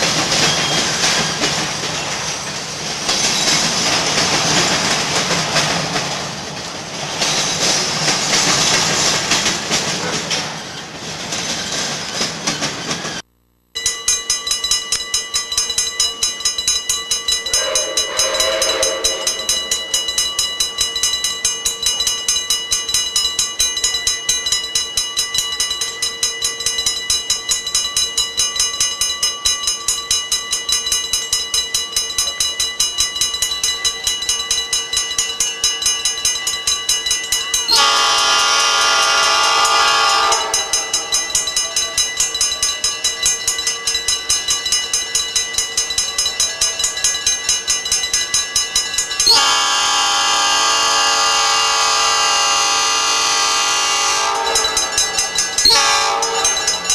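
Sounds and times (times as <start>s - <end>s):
train running rhythmically: 0.0s - 13.2s, 14.1s - 56.9s
train whistle blast: 17.4s - 20.8s, 37.7s - 41.0s, 49.3s - 54.9s, 55.6s - 56.8s.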